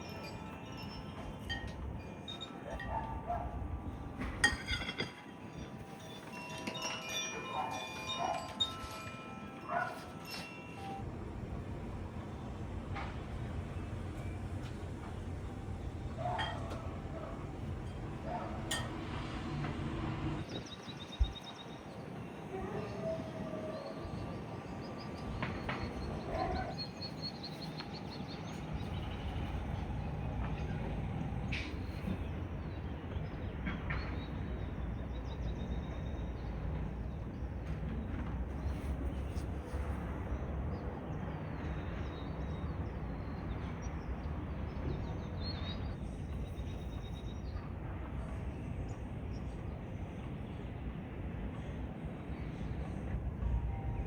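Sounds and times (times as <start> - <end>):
low outdoor rumble: 11.0 - 21.4, 23.8 - 42.2
birds chirping in high trills: 20.4 - 33.0.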